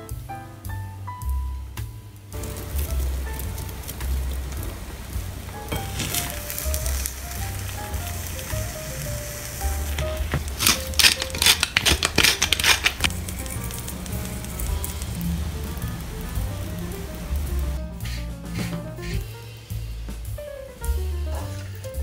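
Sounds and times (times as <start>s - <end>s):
eggs sizzling in a frying pan: 2.2s - 22.0s
pepper grinder clicking: 10.0s - 14.6s
background music with bass beat: 13.0s - 22.0s.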